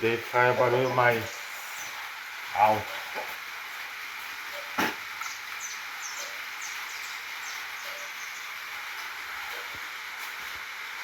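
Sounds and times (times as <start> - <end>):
rain on a metal roof: 0.0 - 11.0
high falling bird chirps: 0.7 - 2.1, 5.1 - 8.7.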